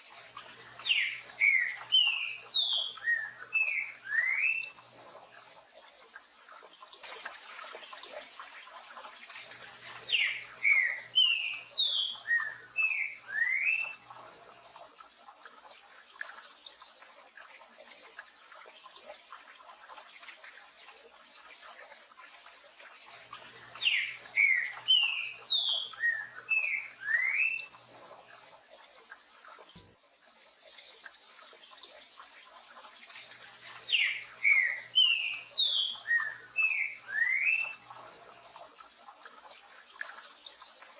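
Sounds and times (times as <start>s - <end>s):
bird singing whistled notes: 0.8s - 4.8s, 10.1s - 14.0s, 23.8s - 27.7s, 33.9s - 37.8s.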